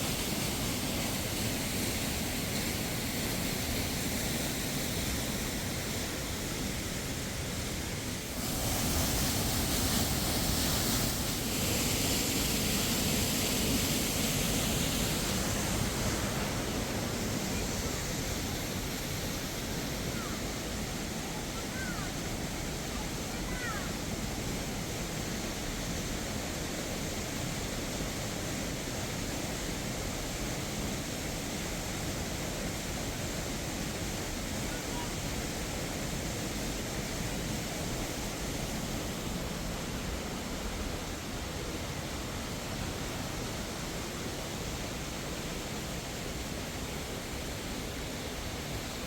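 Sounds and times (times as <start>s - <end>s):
falling water rushing: 0.0s - 49.0s.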